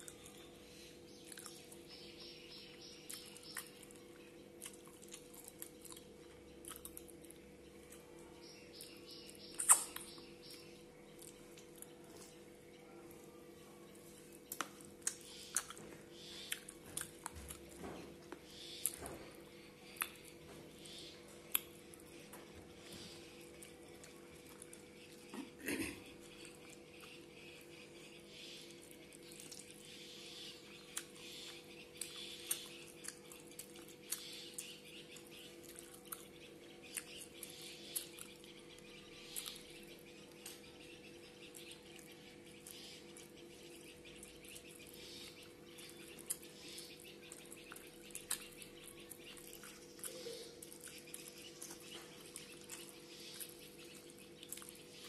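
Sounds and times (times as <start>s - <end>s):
steady low hum: 0.0s - 55.0s
wet chewing and lip-smacking: 1.2s - 1.8s, 4.6s - 8.1s, 8.8s - 12.3s, 14.5s - 15.8s, 16.4s - 19.0s, 28.7s - 29.9s, 30.6s - 39.7s, 44.1s - 55.0s.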